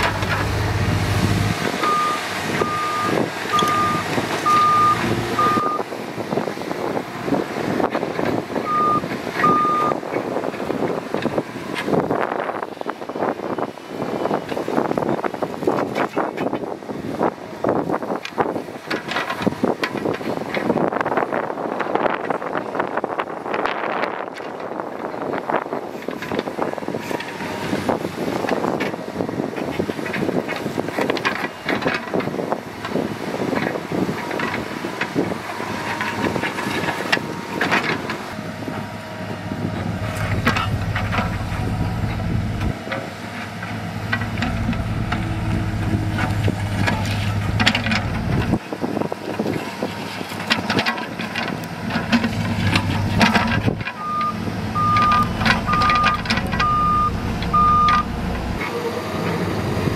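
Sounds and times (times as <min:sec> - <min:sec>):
deep engine drone: 0:00.0 - 0:12.1, 0:33.7 - 0:48.7, 0:49.4 - 0:59.9
diesel engines running: 0:00.0 - 0:59.9
reversing alarm beeping: 0:01.8 - 0:05.8, 0:08.7 - 0:10.0, 0:54.0 - 0:58.1.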